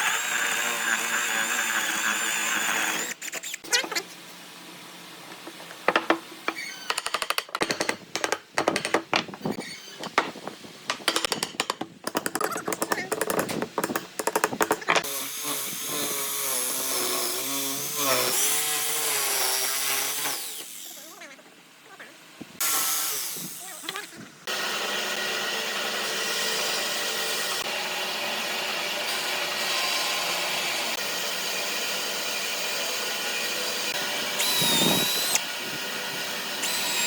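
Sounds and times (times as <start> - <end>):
fast irregular knocks and clicks: 6.9 - 9.4, 11.0 - 15.0.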